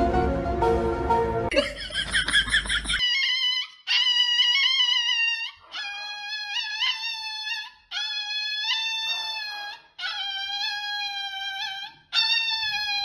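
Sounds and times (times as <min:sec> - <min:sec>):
small dog howling: 0:03.0 - 0:13.0.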